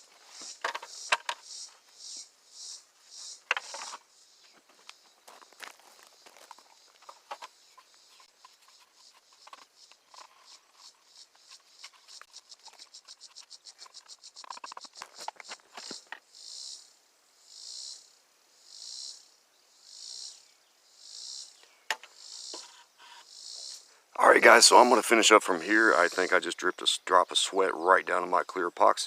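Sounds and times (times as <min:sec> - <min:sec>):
insect call pulsing: 0:00.0 - 0:29.0
insects chirping: 0:00.0 - 0:29.0.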